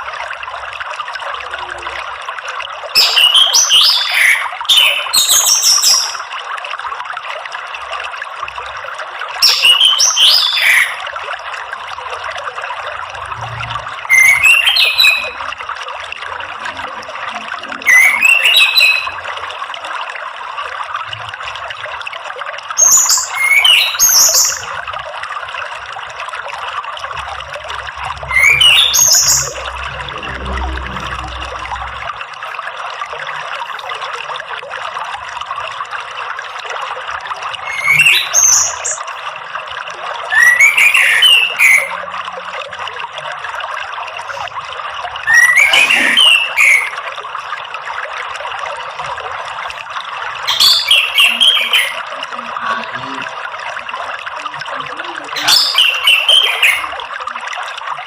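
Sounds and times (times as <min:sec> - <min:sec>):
running water trickle: 0:00.0 - 0:58.0
thrush whistling song: 0:14.1 - 0:15.4, 0:17.8 - 0:19.2, 0:22.8 - 0:24.7, 0:27.3 - 0:32.0, 0:37.6 - 0:39.0, 0:40.3 - 0:42.0, 0:45.2 - 0:47.0, 0:50.5 - 0:52.0, 0:55.4 - 0:56.9.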